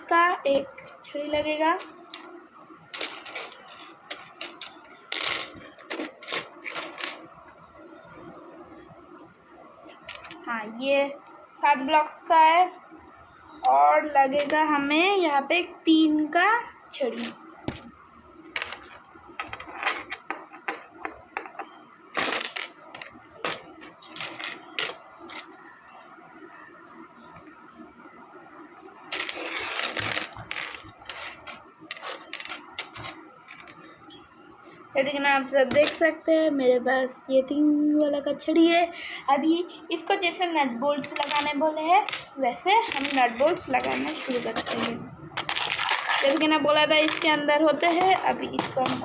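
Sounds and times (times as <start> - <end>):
metal parts clicking and clattering: 2.9 - 7.3, 22.2 - 25.5, 29.1 - 34.3
rummaging scrape: 3.0 - 7.3, 21.6 - 25.5, 29.1 - 33.8, 41.0 - 41.6, 42.9 - 49.0.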